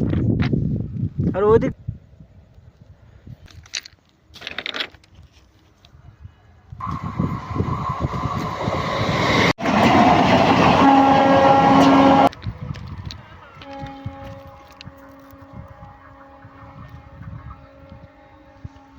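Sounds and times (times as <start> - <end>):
train rumble passing: 6.8 - 18.9
train horn: 9.6 - 18.9.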